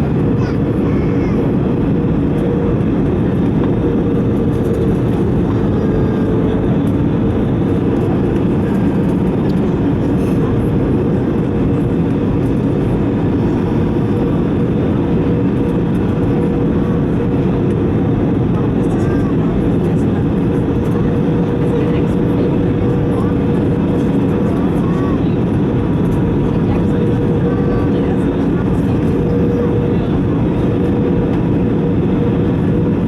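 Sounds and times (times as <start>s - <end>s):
constant cabin hum: 0.0s - 33.0s
engine and airflow rush: 0.0s - 33.0s.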